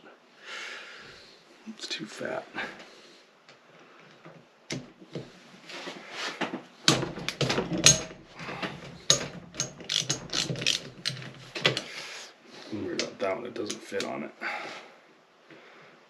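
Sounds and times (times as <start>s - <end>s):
metal tools rattling: 6.9s - 11.8s
socket ratchet clicking: 9.1s - 11.8s.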